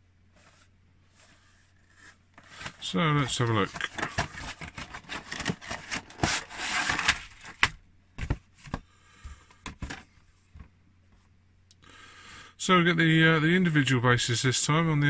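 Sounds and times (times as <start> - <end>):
cardboard box rustle: 1.3 - 8.8.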